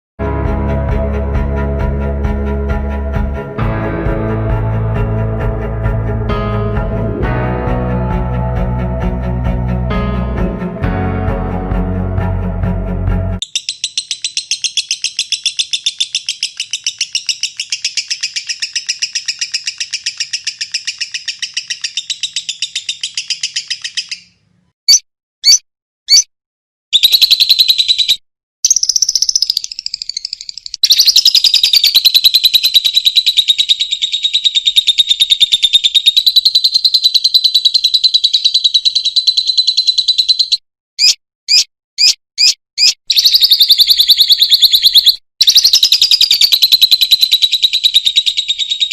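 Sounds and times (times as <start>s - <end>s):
lovebird chattering trills: 13.4s - 24.3s, 27.0s - 48.9s.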